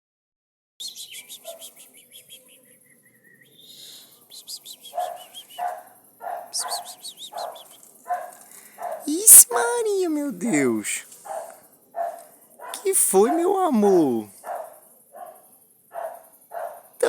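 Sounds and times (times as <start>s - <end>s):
bird singing in trilled runs: 0.8s - 9.1s
dog barking: 1.4s - 1.7s, 4.9s - 9.8s, 11.2s - 13.4s, 14.3s - 17.0s.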